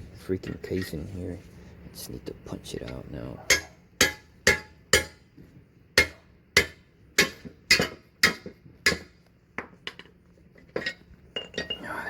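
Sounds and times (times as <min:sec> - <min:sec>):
hammer striking metal punch: 0:03.5 - 0:05.2, 0:06.0 - 0:09.2.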